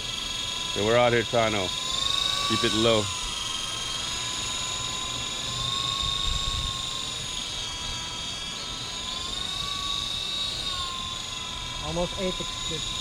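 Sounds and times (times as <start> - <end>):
rc helicopter rotors whining: 0.0 - 13.0
wind buffeting microphone: 6.1 - 6.8.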